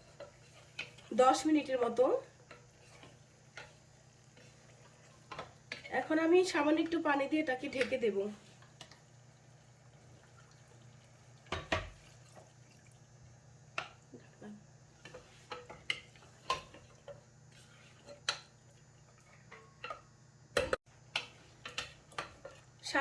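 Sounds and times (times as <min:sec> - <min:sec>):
water poured into a pot: 0:09.2 - 0:13.3.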